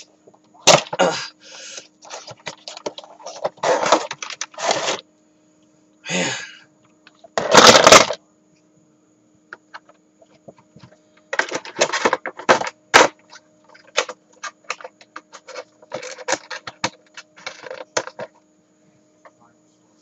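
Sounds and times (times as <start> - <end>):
plastic and cardboard rustling: 2.0 - 5.0, 10.4 - 18.3.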